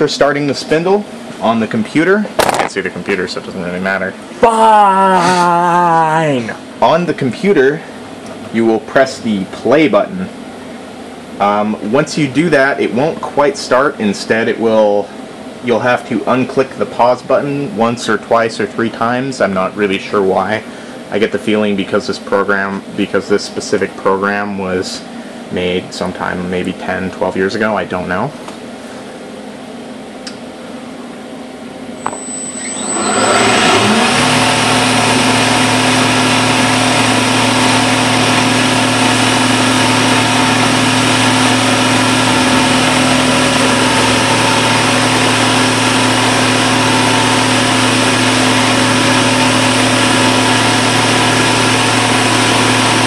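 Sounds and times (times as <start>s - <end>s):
milling machine spindle spinning: 32.0s - 53.0s.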